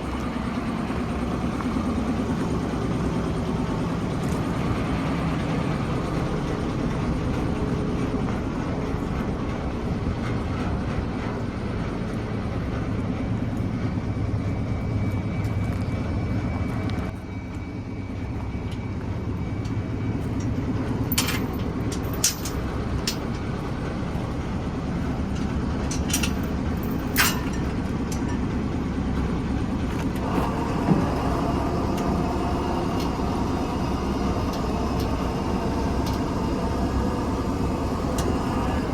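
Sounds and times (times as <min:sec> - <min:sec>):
diesel truck engine running: 0:00.0 - 0:38.9.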